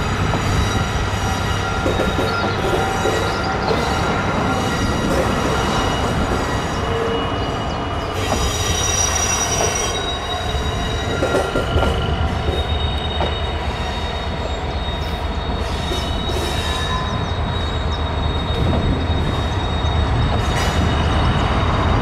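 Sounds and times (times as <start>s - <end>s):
train low rumble: 0.0s - 22.0s
train wheels squealing on rails: 0.0s - 22.0s.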